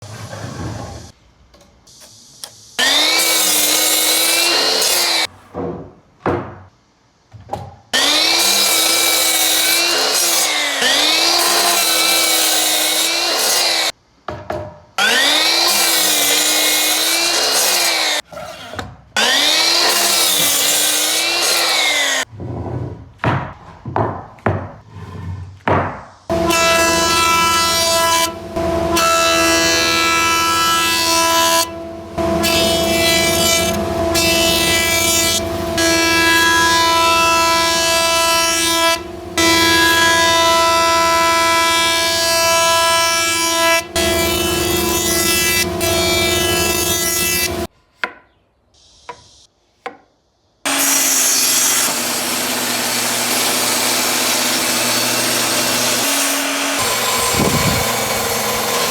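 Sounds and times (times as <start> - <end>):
steady hiss: 0.8 - 2.9
power tool motor whining: 26.3 - 47.7, 50.7 - 58.9.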